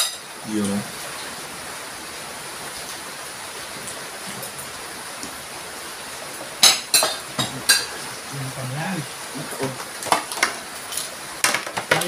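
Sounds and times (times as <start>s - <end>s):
tableware clink: 0.0s - 0.2s, 6.6s - 8.0s
rain falling: 0.0s - 12.0s.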